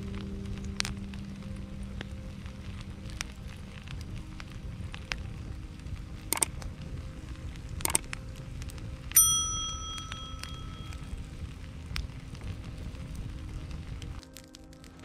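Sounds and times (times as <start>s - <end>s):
metallic bell-like chime: 9.2s - 11.1s.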